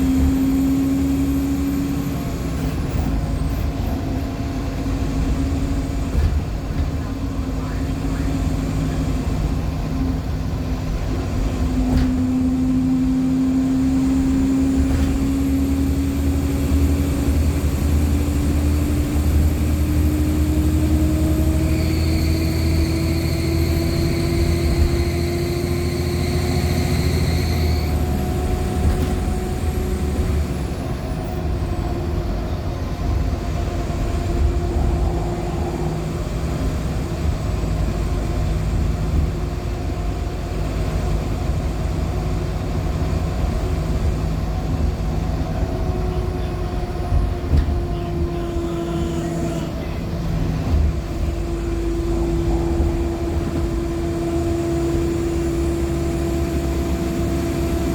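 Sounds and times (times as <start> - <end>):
bus engine hum with rising whine: 0.0 - 57.9
squealing tone: 34.3 - 36.9, 51.2 - 55.7.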